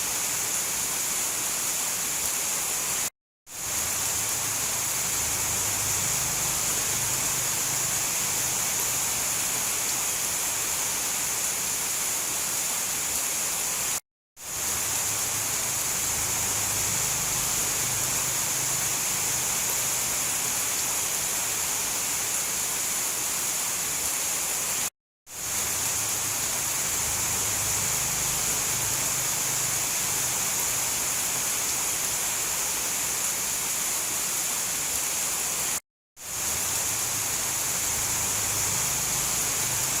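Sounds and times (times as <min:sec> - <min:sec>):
steady rain: 0:00.0 - 0:40.0.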